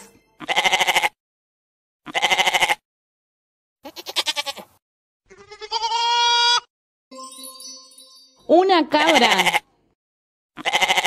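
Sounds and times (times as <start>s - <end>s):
goat bleating: 0.4s - 1.2s, 2.1s - 2.8s, 3.8s - 6.7s, 9.0s - 9.7s, 10.6s - 11.0s.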